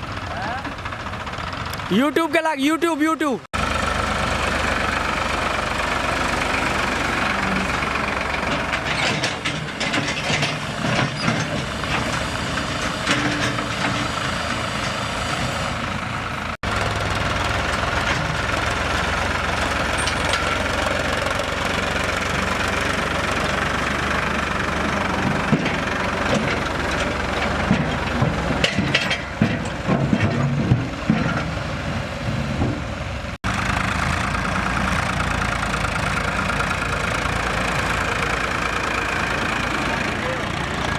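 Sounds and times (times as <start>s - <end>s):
diesel engine running: 0.0s - 40.9s
irregular knocks and clatters: 8.2s - 15.0s, 24.6s - 33.0s.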